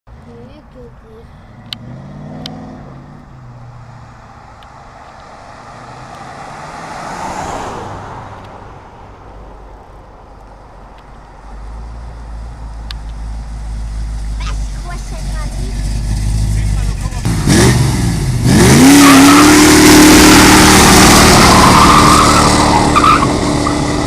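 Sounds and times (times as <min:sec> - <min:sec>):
car passing by: 0:01.4 - 0:09.6
deep engine rumble: 0:09.6 - 0:24.0.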